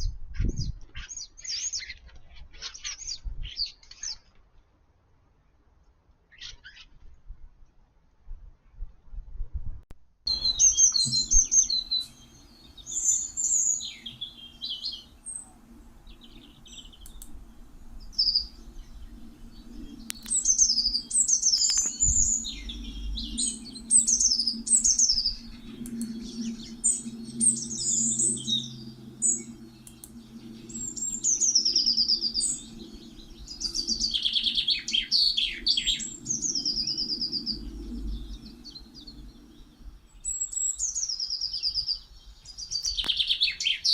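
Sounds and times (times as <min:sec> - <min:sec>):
steady low hum: 0:10.3 - 0:42.4
starlings chirping and whistling: 0:10.3 - 0:43.9.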